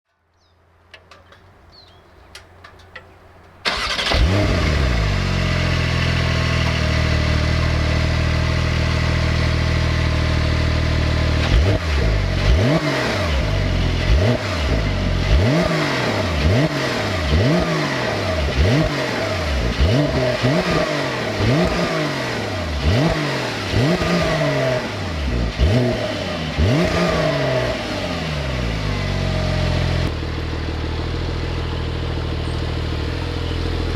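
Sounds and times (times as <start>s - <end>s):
faint clicks: 0.3s - 3.6s
car engine starting and idling: 0.9s - 33.9s
engine revving in blips: 3.6s - 33.9s.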